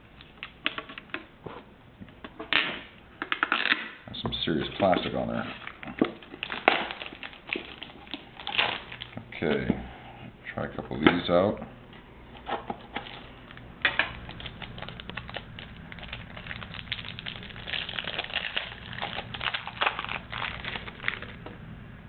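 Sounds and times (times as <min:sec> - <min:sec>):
plastic packaging crinkling: 0:04.8 - 0:09.2, 0:12.8 - 0:21.6.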